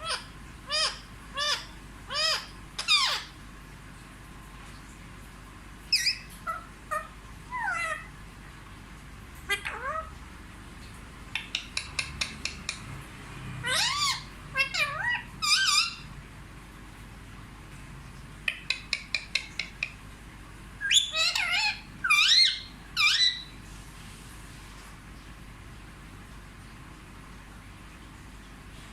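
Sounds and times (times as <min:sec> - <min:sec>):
parakeet swooping calls: 0:00.0 - 0:03.3, 0:05.9 - 0:08.1, 0:09.5 - 0:10.1, 0:13.6 - 0:16.1, 0:20.8 - 0:23.5
parakeet clicks: 0:11.3 - 0:12.9, 0:18.4 - 0:20.0.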